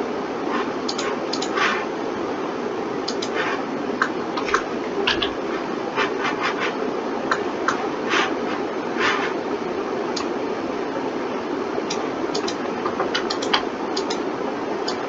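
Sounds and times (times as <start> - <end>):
steady hum: 0.0 - 15.0
mouse and keyboard clicking: 0.5 - 1.8, 3.1 - 3.6, 11.9 - 14.2.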